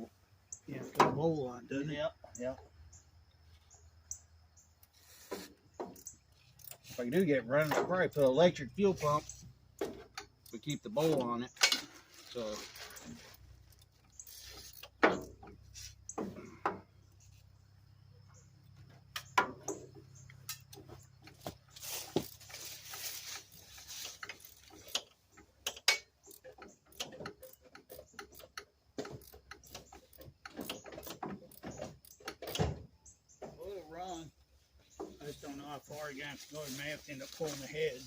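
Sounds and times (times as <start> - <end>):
hand tools clicking on metal: 23.4 - 32.6.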